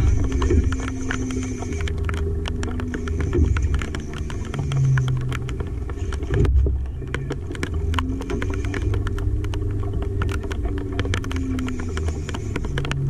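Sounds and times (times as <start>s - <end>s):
faint hum shifting in pitch: 0.0s - 13.0s
low rumble: 0.0s - 13.0s
raindrops ticking: 0.0s - 13.0s
steady rain: 0.0s - 13.0s.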